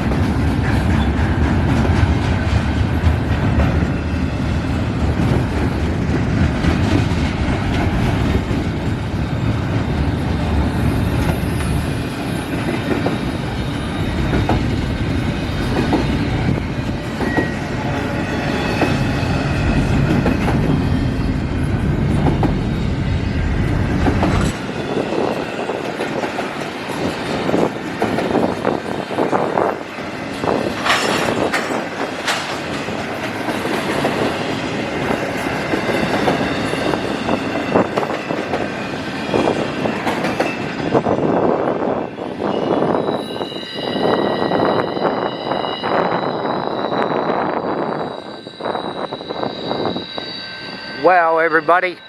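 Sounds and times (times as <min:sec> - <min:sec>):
freight train rumbling past: 0:00.0 - 0:52.0
high wheel squeal: 0:10.6 - 0:21.2, 0:42.2 - 0:52.0.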